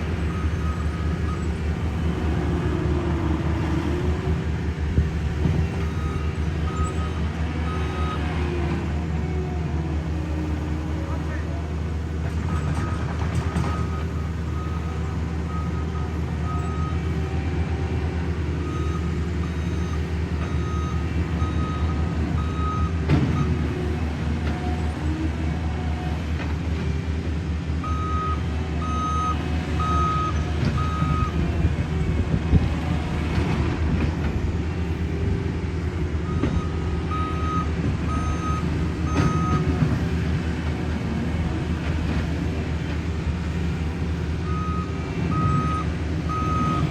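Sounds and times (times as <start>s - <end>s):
diesel engine running: 0.0s - 46.9s
reversing alarm beeping: 18.6s - 23.7s, 27.8s - 31.4s, 36.2s - 39.7s, 44.4s - 46.9s.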